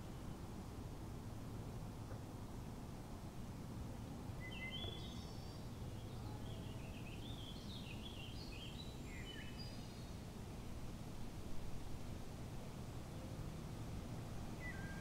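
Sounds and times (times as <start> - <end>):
songbird singing: 4.4 - 10.3, 14.3 - 15.0.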